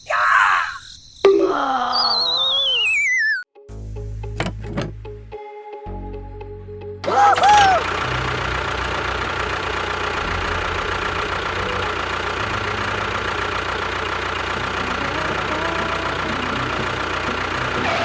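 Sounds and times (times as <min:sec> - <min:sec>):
machine rumbling with high whine: 0:06.0 - 0:18.0.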